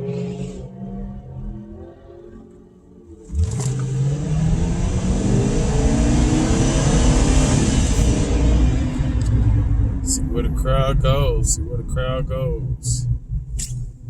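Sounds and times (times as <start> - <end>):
car engine revving hard: 0.0 - 1.9, 3.2 - 11.4.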